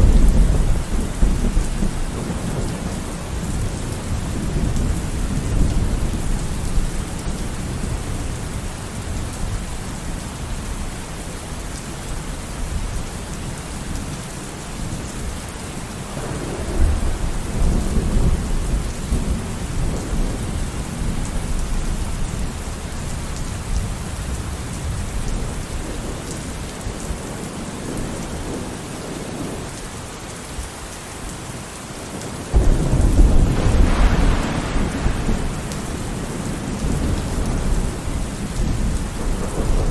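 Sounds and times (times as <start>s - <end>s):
rolling thunder: 0.0s - 9.6s, 16.1s - 22.5s, 32.5s - 39.9s
steady rain: 0.0s - 39.9s.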